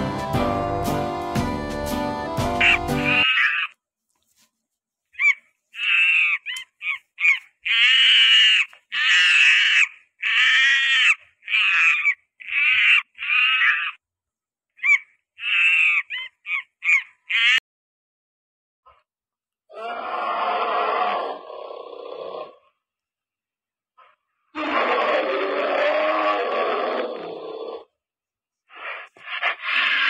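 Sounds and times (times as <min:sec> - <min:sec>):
monkey screeching: 0:02.6 - 0:03.8, 0:05.2 - 0:14.0, 0:14.8 - 0:17.6, 0:24.6 - 0:27.6, 0:28.8 - 0:30.0.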